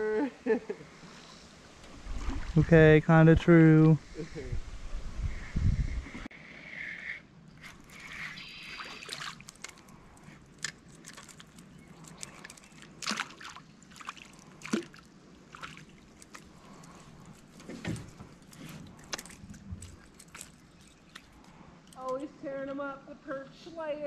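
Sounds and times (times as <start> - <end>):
water sloshing around canoe: 1.8 - 2.6, 7.7 - 21.6
light splashes: 1.8 - 2.7, 7.6 - 22.1.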